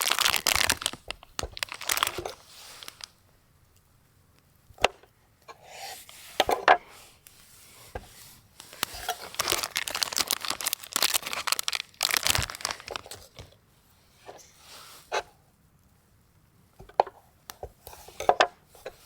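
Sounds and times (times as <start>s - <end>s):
packaging crinkling: 0.0s - 3.2s, 8.6s - 13.6s.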